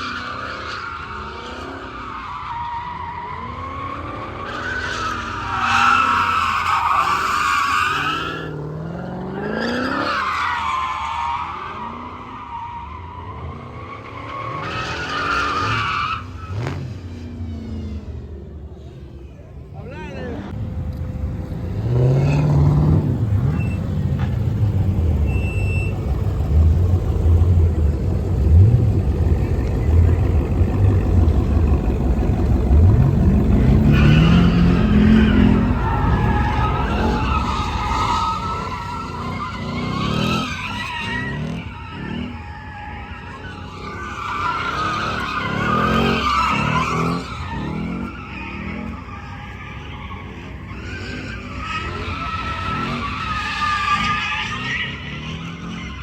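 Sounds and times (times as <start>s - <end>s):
car engine revving: 19.9s - 49.7s
tyres squealing: 29.4s - 56.0s.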